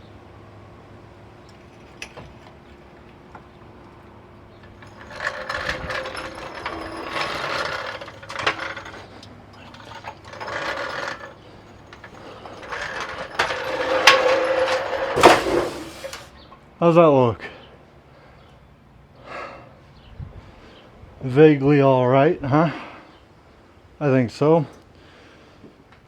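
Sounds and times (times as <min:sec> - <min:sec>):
jack ratcheting and creaking: 0:04.6 - 0:16.3.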